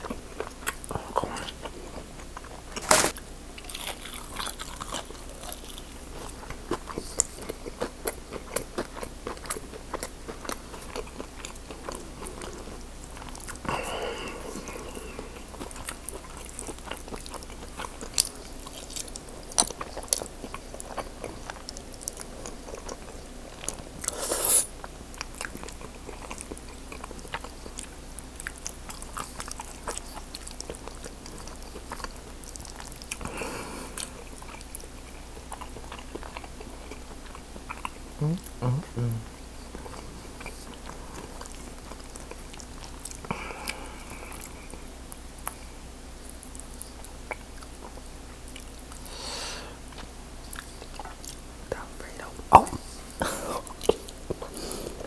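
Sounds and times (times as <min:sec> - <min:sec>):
chewing food: 0:00.0 - 0:55.0.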